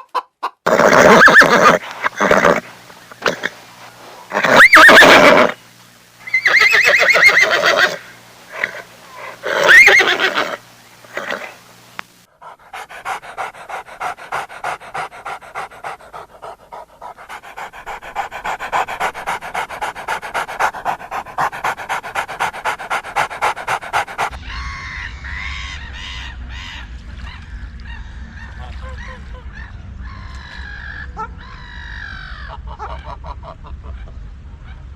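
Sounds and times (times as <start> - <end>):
steady low rumble: 11.8 - 34.9
dog panting: 12.3 - 24.4.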